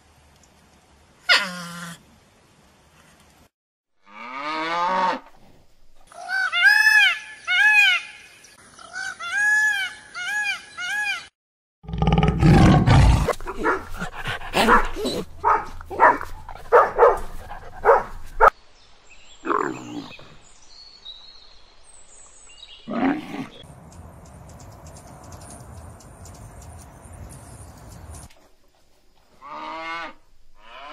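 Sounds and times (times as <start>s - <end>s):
dog barking: 13.4s - 18.5s.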